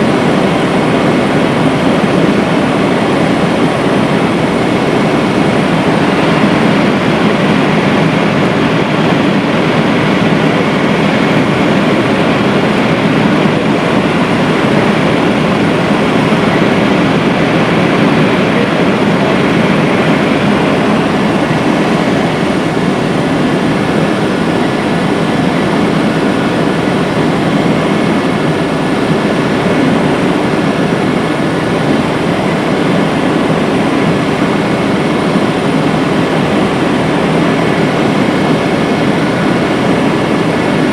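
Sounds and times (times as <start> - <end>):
faint steady whine: 0.0 - 40.9
helicopter engine and rotor din: 0.0 - 40.9.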